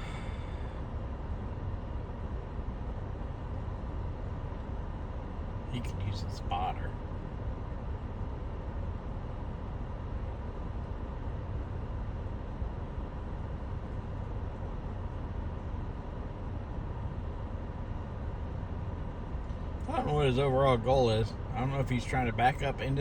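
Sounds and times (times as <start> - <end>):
vehicles idling in traffic: 0.0 - 23.0.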